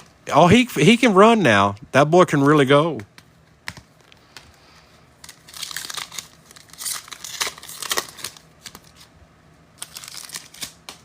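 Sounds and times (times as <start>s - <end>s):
foil wrapper crinkling and tearing: 5.2s - 9.1s, 9.8s - 11.0s.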